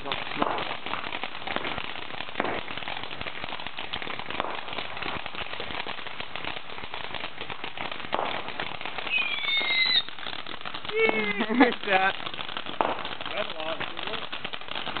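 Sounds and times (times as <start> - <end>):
fireworks crackling and popping: 0.0 - 15.0
high firework whistle: 9.0 - 10.1.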